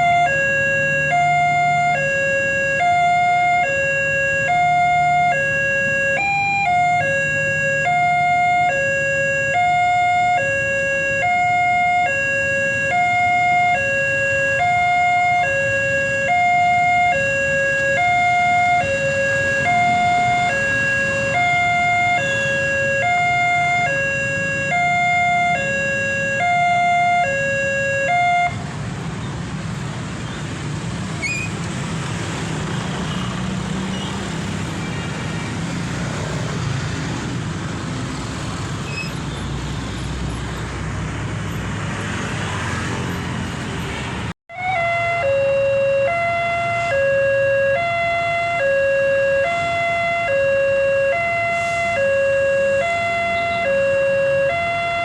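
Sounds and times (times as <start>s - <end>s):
level crossing warning siren: 0.0s - 28.7s, 44.5s - 55.0s
road traffic noise: 0.0s - 55.0s.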